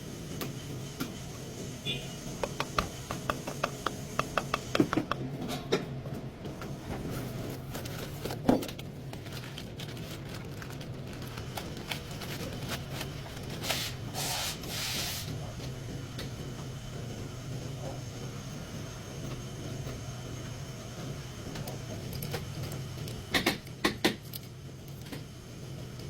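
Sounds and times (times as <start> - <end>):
steady low hum: 0.0 - 10.2
hand tool clicks and scraping: 2.4 - 5.2
short hisses: 13.7 - 15.3.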